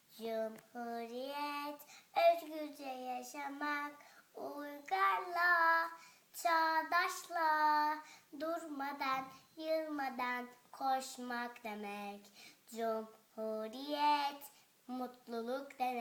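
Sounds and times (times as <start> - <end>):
child singing unaccompanied: 0.0 - 16.0.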